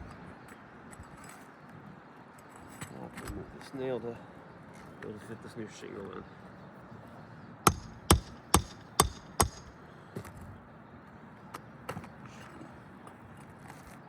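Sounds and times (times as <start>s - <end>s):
hammer striking nail: 7.7s - 9.7s.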